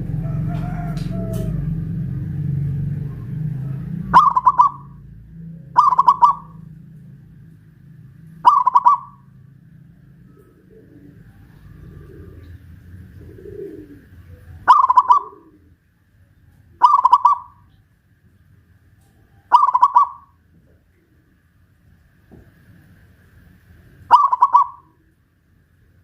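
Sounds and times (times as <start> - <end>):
dove cooing: 0.0 - 7.2, 8.3 - 15.9, 16.7 - 17.8, 19.2 - 21.3, 24.1 - 25.2.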